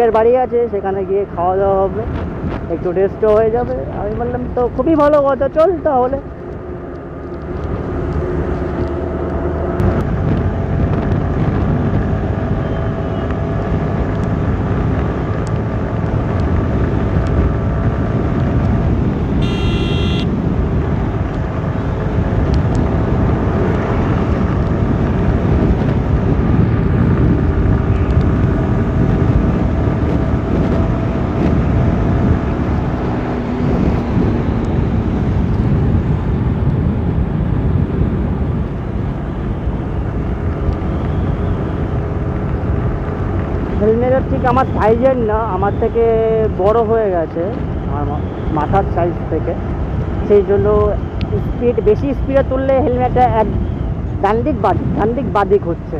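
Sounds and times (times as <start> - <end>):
motorcycle engine drone: 0.0 - 55.9
road and wind noise: 0.0 - 55.9
vehicle horn: 19.4 - 20.4.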